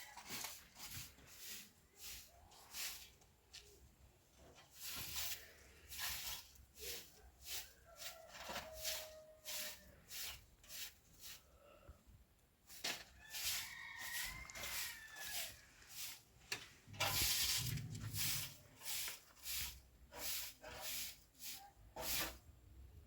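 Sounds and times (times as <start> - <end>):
trowel scraping cement: 4.6 - 11.5, 12.7 - 16.3, 16.9 - 22.4.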